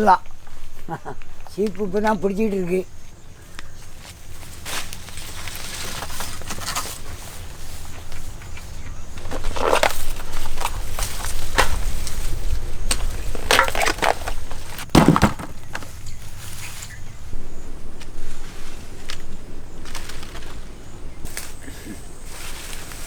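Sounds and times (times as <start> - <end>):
dry plant material crunching: 3.4 - 17.2, 18.0 - 23.0.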